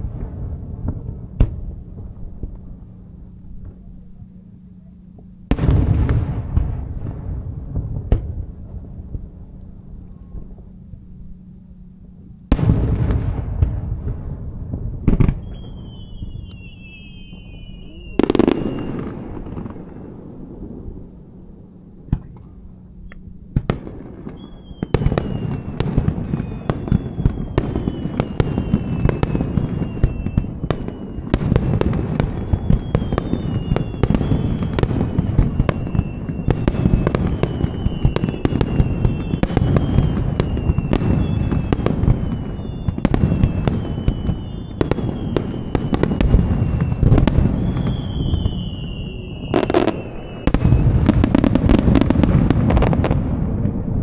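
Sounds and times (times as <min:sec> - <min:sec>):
firework bangs and crackling: 0:00.0 - 0:03.9, 0:05.2 - 0:09.8, 0:12.5 - 0:21.3, 0:23.5 - 0:54.0
high falling whistles: 0:15.4 - 0:19.1, 0:24.3 - 0:31.4, 0:32.4 - 0:34.7, 0:35.4 - 0:51.8.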